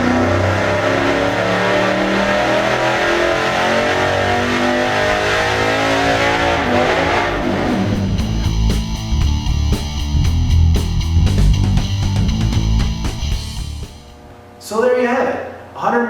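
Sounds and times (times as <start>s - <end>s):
supercharged engine running hard: 0.0s - 10.4s.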